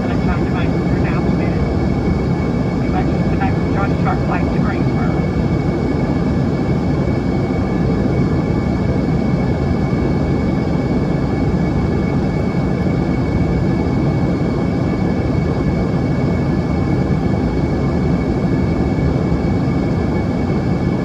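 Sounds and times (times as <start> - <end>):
airflow rush in aircraft cabin: 0.0 - 9.0
turbofan engines: 0.0 - 9.0.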